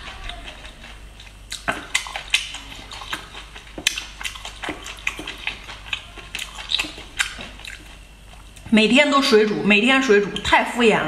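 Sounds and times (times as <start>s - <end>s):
wet chewing and mouth smacking: 0.0s - 8.7s.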